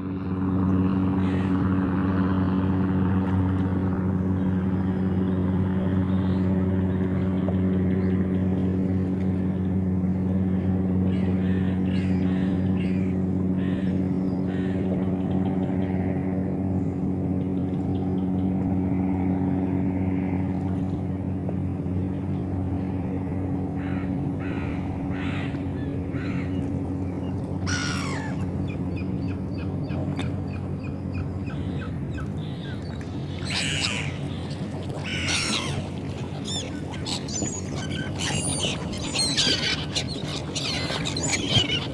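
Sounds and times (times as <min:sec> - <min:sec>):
engine humming steadily: 0:00.0 - 0:41.9
seagulls calling: 0:00.9 - 0:02.2, 0:10.3 - 0:16.1, 0:23.6 - 0:41.9.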